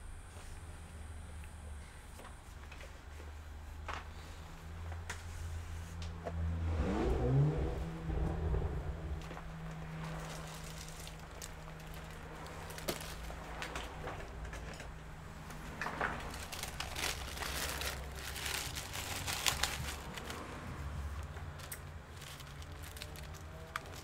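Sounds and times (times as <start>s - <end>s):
low hum: 0.0s - 24.0s
hands clicking and rustling laptop parts: 10.0s - 20.4s.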